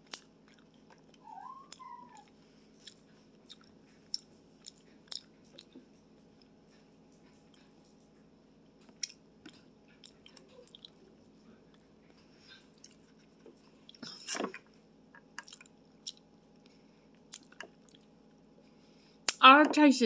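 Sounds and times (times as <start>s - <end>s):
person chewing with mouth clicks: 0.0s - 1.9s, 2.8s - 5.8s, 8.9s - 11.0s, 12.5s - 14.5s, 15.2s - 16.3s, 17.2s - 18.1s.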